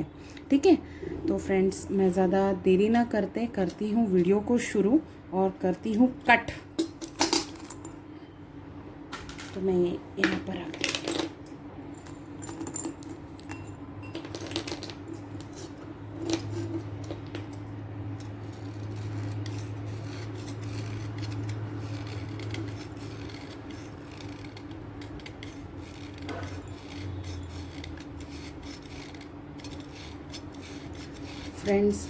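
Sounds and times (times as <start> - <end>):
low steady hum: 0.0 - 32.0
knife scraping chalk: 18.2 - 32.0.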